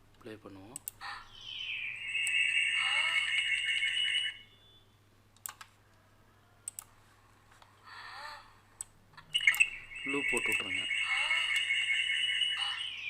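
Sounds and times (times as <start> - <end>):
whistle-like sound with stuttering echo: 1.2 - 4.9, 9.4 - 13.0
mouse clicks: 6.7 - 6.9.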